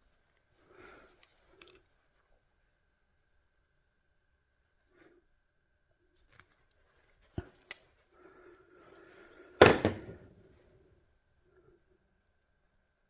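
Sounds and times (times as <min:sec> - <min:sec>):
loud tool snap: 0:09.6 - 0:10.2.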